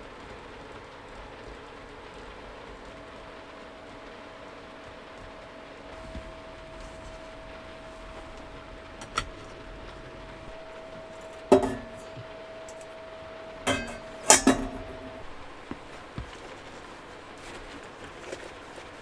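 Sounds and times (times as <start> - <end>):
faint steady hum: 0.0 - 19.0
heavy rain on a van: 0.0 - 19.0
tableware clinking: 6.0 - 17.6.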